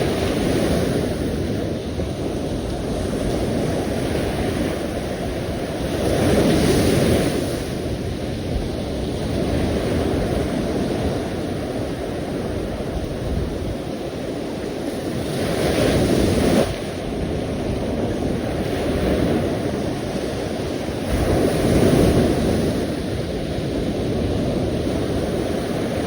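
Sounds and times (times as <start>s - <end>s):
sea waves breaking: 0.0s - 26.0s.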